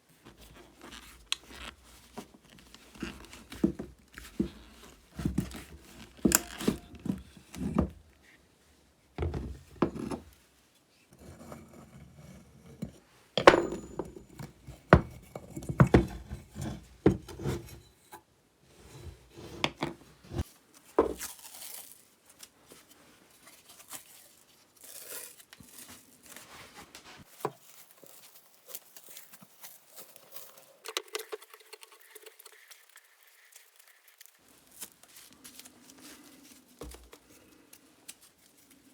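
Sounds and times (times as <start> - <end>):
metal parts clinking and knocking: 6.3 - 7.1, 13.4 - 14.5
scraping and rubbing strokes: 26.4 - 36.8.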